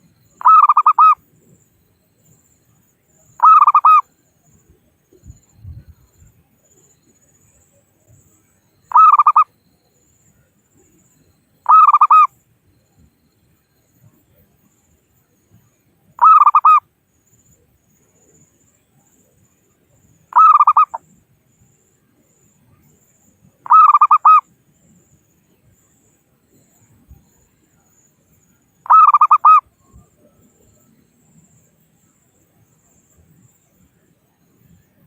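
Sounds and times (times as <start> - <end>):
dove cooing: 0.4 - 1.2, 8.9 - 9.4, 11.7 - 12.3, 20.4 - 21.0, 23.7 - 24.4, 28.9 - 29.6.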